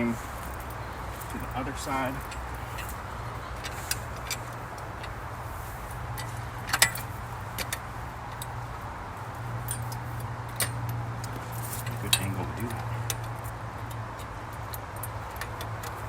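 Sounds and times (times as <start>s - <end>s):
steady low hum: 0.0s - 16.0s
metal clicks of hand tools: 6.1s - 8.6s, 9.6s - 16.0s.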